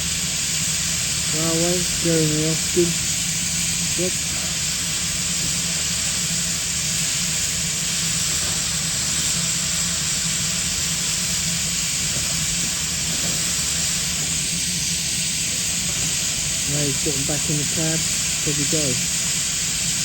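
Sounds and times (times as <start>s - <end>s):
steam hissing: 0.0s - 20.0s.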